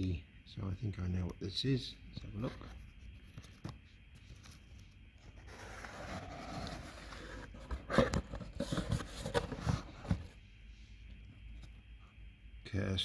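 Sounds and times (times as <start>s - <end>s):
packaging rustling and scraping: 4.2s - 10.4s.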